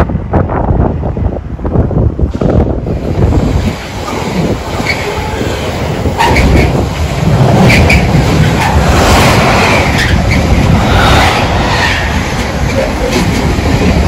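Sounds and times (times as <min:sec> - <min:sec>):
train rumble: 0:00.0 - 0:14.0.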